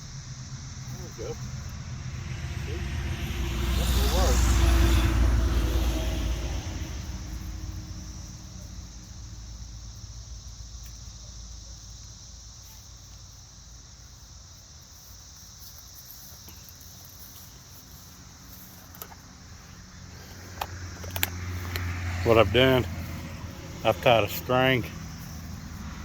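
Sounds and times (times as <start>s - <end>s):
low rumble: 0.0s - 10.9s
insect chorus: 0.0s - 26.0s.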